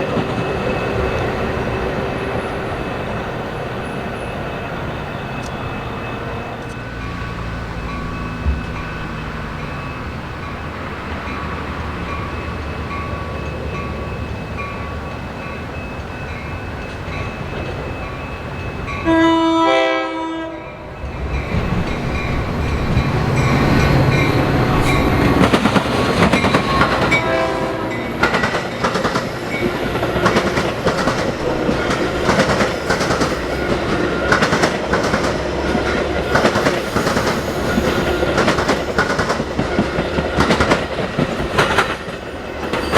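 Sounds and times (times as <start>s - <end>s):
diesel locomotive rumble: 0.0s - 19.4s, 20.4s - 42.9s
train horn: 19.0s - 20.9s, 26.6s - 28.1s
wheels clattering over rail joints: 21.1s - 42.9s.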